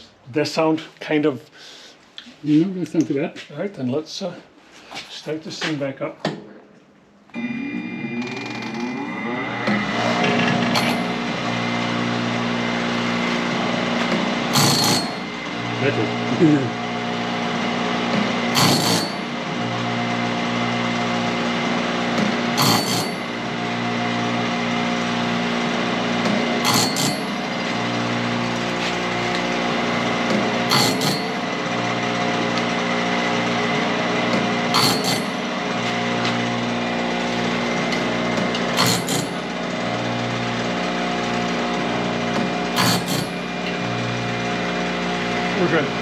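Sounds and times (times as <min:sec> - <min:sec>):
low machine hum: 0:06.6 - 0:46.0
blade sharpener running: 0:07.4 - 0:46.0.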